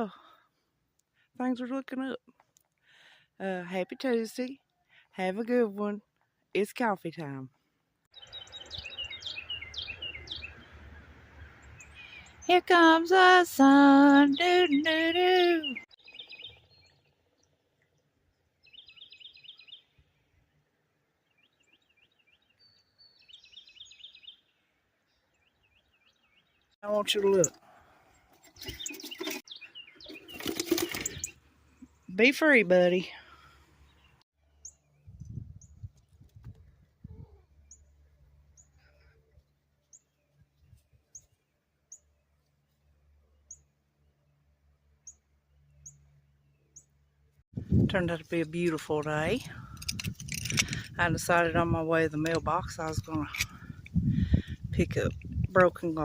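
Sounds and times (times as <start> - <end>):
songbird chirping: 8.0 - 36.0, 37.0 - 49.8.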